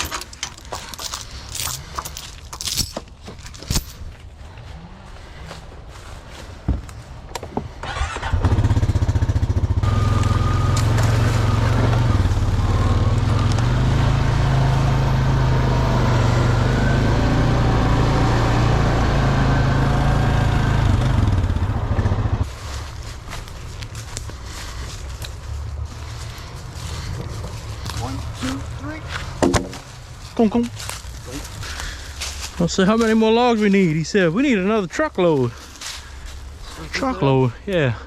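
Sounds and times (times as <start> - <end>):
small engine running: 7.9 - 22.4.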